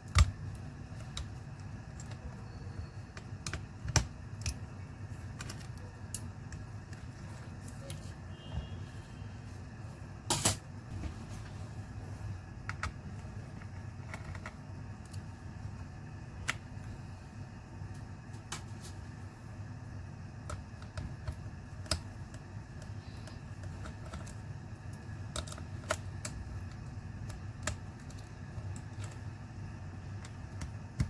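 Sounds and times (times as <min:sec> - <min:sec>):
tools and laptop parts clicking: 0:00.0 - 0:08.1, 0:12.6 - 0:15.2, 0:20.4 - 0:29.4
steady low hum: 0:00.0 - 0:31.0.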